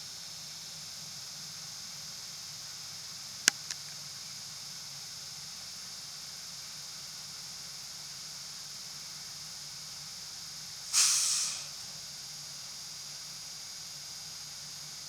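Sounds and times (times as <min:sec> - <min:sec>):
compressed air hiss: 0:10.9 - 0:11.9.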